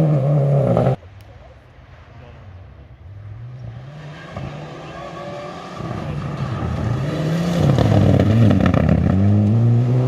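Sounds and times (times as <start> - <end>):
rally car engine revving: 0.0 - 1.0, 3.4 - 10.0.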